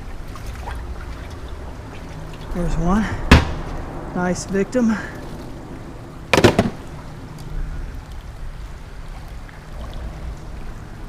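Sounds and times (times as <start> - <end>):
water lapping around a boat: 0.0 - 11.0
wind rumble on microphone: 0.0 - 11.0
sharp knock: 3.3 - 3.6, 6.3 - 6.8.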